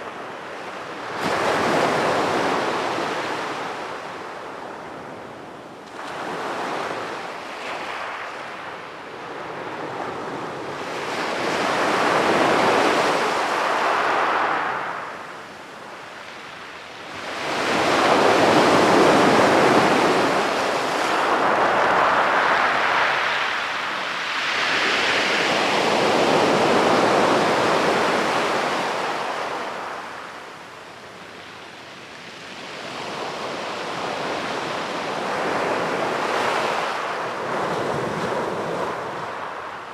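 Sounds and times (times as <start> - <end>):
sea waves breaking on beach: 17.0 - 30.6, 32.1 - 39.9.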